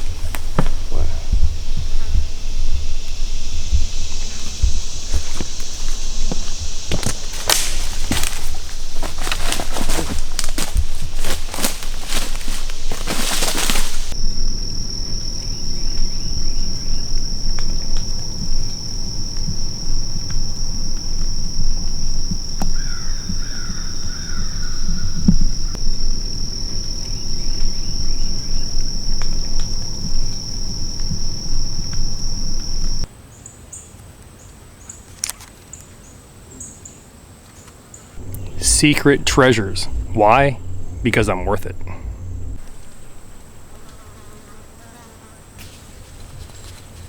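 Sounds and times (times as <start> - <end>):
higher insect trill: 0.0 - 33.1, 38.2 - 47.0
insects trilling: 0.0 - 33.1, 38.2 - 47.0
bird chirps: 38.2 - 43.8
low rumble: 38.2 - 44.0.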